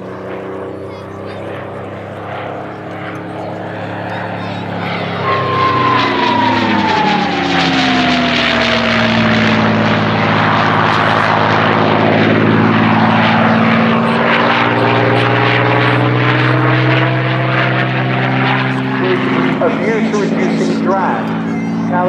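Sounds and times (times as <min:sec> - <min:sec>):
propeller plane flying past: 0:00.0 - 0:22.0
high whistle sliding down: 0:05.2 - 0:09.4.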